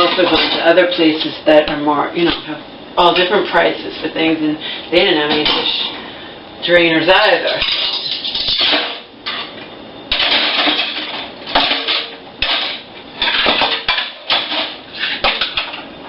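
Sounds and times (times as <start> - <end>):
dishes and cutlery clattering: 0.0 - 0.7, 7.5 - 15.8.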